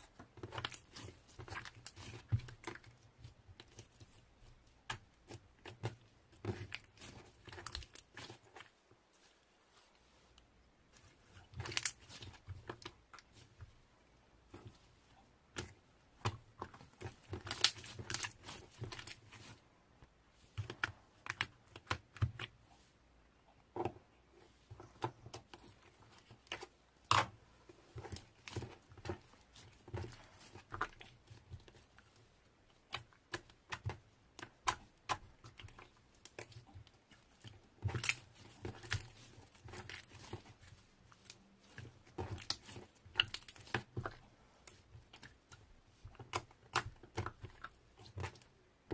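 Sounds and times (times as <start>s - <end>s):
slime being squished by hand: 24.8s - 48.9s.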